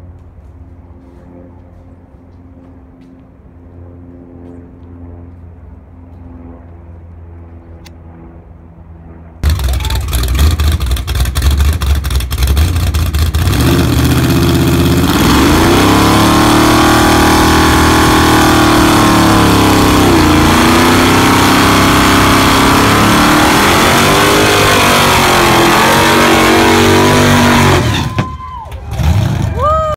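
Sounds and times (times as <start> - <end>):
car engine revving: 9.4 - 28.1.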